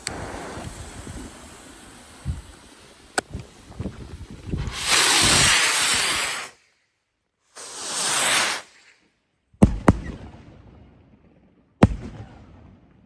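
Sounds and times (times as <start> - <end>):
firework rocket launch hiss: 0.0 - 6.7, 7.5 - 10.1
firework shells bursting: 9.6 - 10.5, 11.8 - 13.0.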